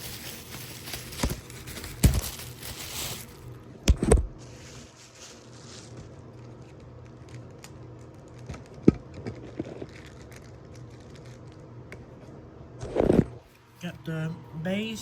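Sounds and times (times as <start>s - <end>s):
bubble wrap crackling: 0.0s - 3.6s, 4.5s - 11.8s.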